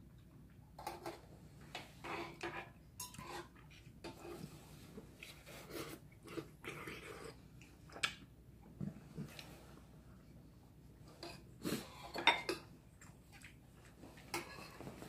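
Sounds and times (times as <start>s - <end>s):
man chewing food: 3.5s - 9.8s, 11.2s - 15.0s.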